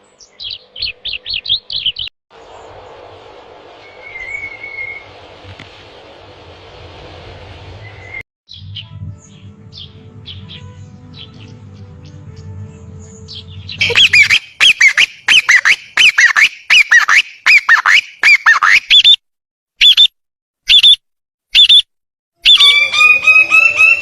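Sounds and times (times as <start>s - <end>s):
bird harsh calls: 13.1s - 19.2s, 22.4s - 24.0s
drawn-out bird call: 13.2s - 19.2s, 22.4s - 24.0s.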